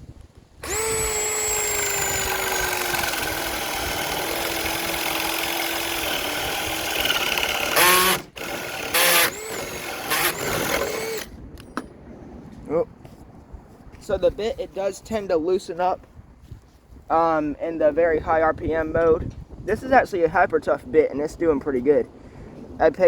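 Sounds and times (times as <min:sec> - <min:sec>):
drill boring into wood: 0:00.6 - 0:11.3.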